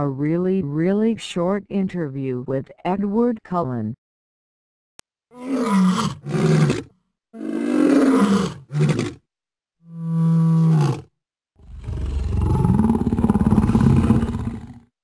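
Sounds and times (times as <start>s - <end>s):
large animal roaring and growling: 5.4s - 9.2s, 9.9s - 14.9s.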